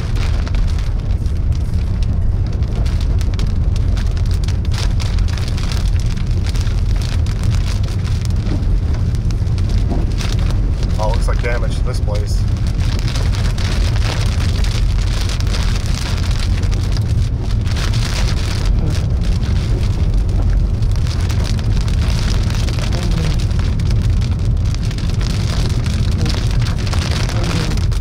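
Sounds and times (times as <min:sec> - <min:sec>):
rain pattering on car roof: 0:00.0 - 0:28.0
vehicle rumble and tyres on wet road: 0:00.0 - 0:28.0.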